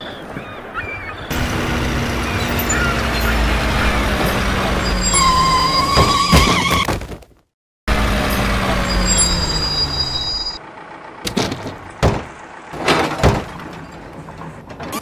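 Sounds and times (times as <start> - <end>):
rushing vehicle-like sound: 1.2 - 6.9, 7.9 - 15.0
toy truck knocking and thudding: 11.2 - 15.0.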